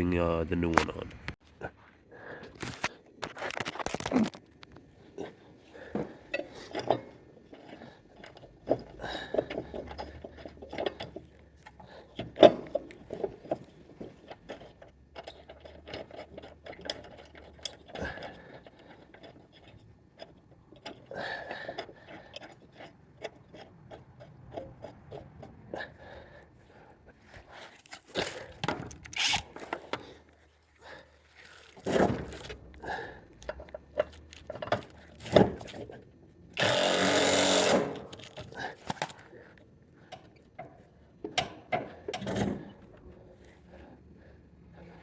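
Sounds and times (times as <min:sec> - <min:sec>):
metal clinks and scrapes: 0:06.2 - 0:25.8, 0:27.3 - 0:30.4.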